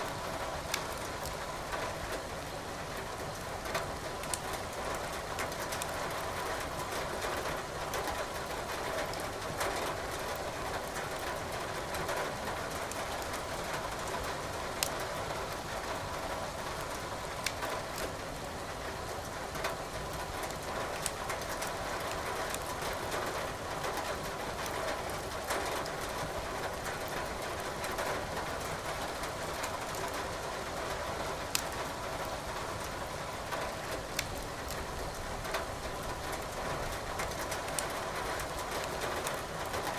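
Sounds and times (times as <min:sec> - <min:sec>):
wood fire crackling and popping: 0:00.6 - 0:01.4, 0:04.1 - 0:04.5, 0:05.4 - 0:06.0, 0:17.4 - 0:17.6, 0:20.4 - 0:21.2, 0:22.0 - 0:22.8, 0:31.4 - 0:31.8, 0:33.7 - 0:34.9, 0:37.2 - 0:39.9.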